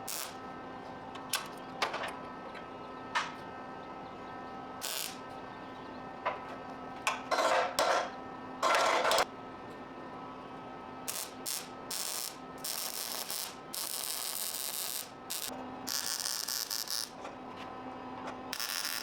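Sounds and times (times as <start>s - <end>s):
welding arc crackling: 0.0s - 0.4s, 4.8s - 5.3s, 11.1s - 17.2s, 18.5s - 19.0s.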